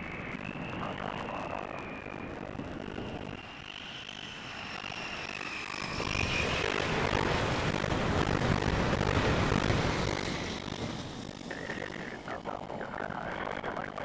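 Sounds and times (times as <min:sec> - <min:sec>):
jet engine whine and rumble: 0:00.0 - 0:14.0.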